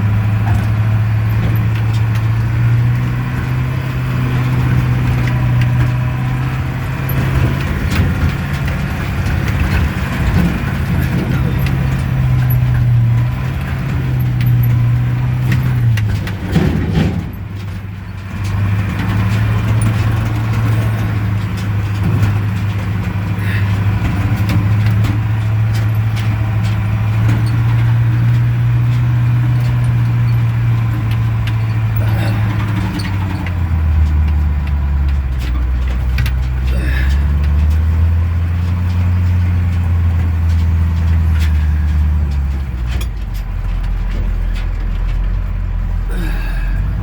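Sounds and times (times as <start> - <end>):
truck engine droning under load: 0.0 - 47.0
short metal clanks: 0.1 - 47.0.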